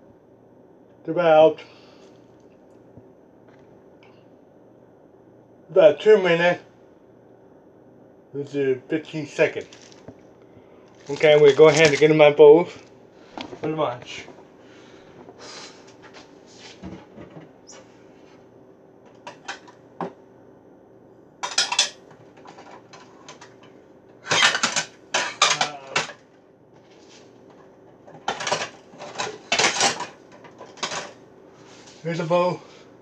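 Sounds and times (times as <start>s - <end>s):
dishes clattering: 21.4s - 23.7s, 24.3s - 26.2s, 28.1s - 31.2s.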